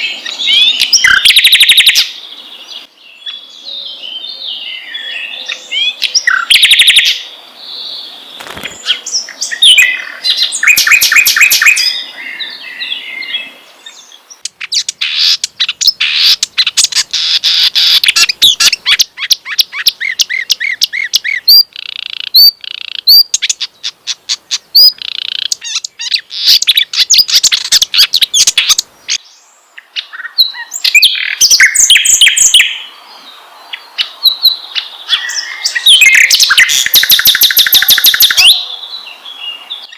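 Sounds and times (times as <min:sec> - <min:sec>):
songbird chattering and trills: 0:00.0 - 0:07.3, 0:08.4 - 0:32.9, 0:33.7 - 0:39.9
rising whistled bird notes: 0:03.2 - 0:07.2, 0:34.2 - 0:39.9.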